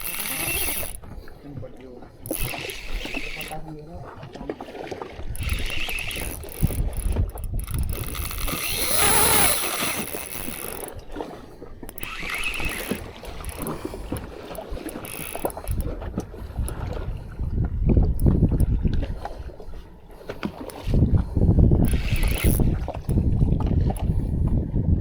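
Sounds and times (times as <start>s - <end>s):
boat noise: 0.0s - 24.8s
sea noise: 0.0s - 24.8s
wind gusting on microphone: 5.2s - 11.1s, 12.1s - 19.6s, 20.8s - 25.0s.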